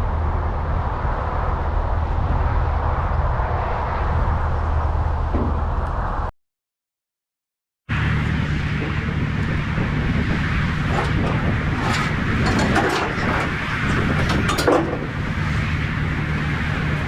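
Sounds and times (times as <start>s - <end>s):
truck engine humming: 7.9s - 17.0s
light clicks and rattles: 10.9s - 15.0s.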